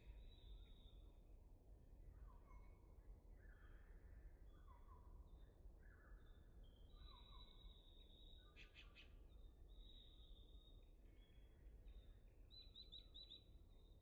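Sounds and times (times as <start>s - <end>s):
songbirds singing: 6.0s - 14.0s.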